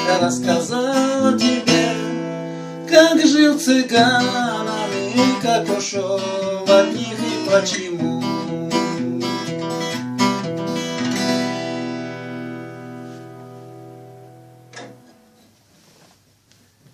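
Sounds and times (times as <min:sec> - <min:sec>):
acoustic guitar strumming: 0:00.0 - 0:15.5.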